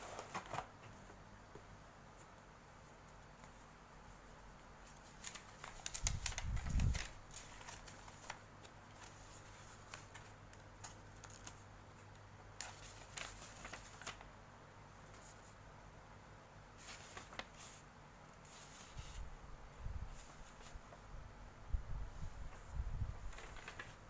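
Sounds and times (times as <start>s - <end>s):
plastic and cardboard rustling: 0.0s - 1.1s, 4.8s - 11.6s, 12.6s - 14.3s, 16.8s - 17.8s, 22.3s - 24.0s.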